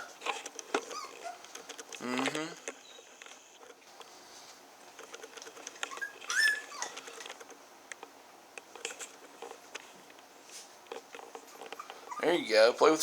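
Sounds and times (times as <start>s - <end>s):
puppy whimpering: 0.0s - 1.5s, 5.9s - 7.2s, 11.5s - 12.5s
puppies pattering about: 0.0s - 2.0s, 2.6s - 7.6s, 8.7s - 13.0s.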